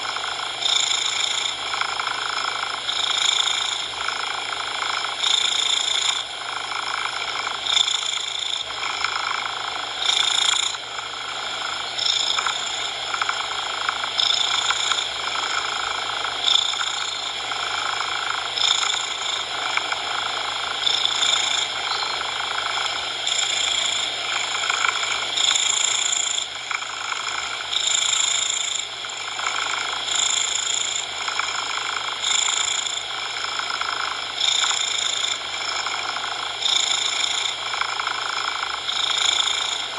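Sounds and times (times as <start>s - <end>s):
cat purring: 0.0s - 39.9s
steady noise hiss: 0.0s - 39.9s.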